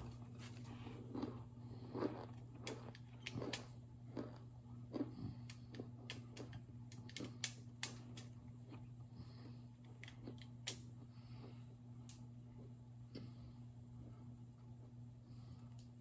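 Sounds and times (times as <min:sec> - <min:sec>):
crunchy chewing: 0:00.0 - 0:10.8
low hum: 0:00.0 - 0:16.0.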